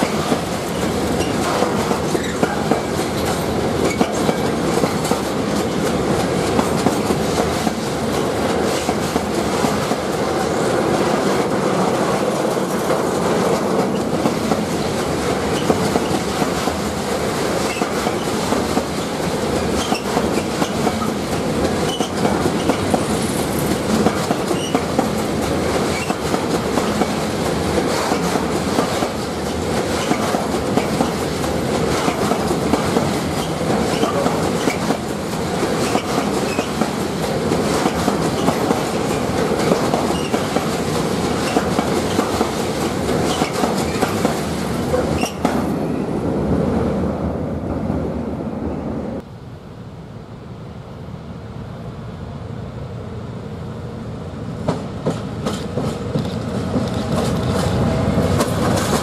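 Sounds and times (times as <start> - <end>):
wheels clicking over rail joints: 0.0 - 9.3, 35.7 - 45.6.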